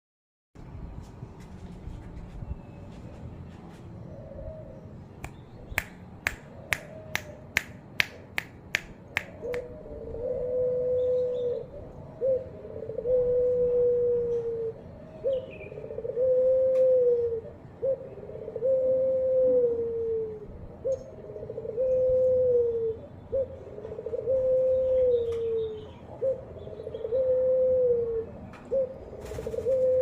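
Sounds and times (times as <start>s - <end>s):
dove cooing: 4.0s - 5.0s, 9.3s - 30.0s
sharp clicks: 5.2s - 9.6s.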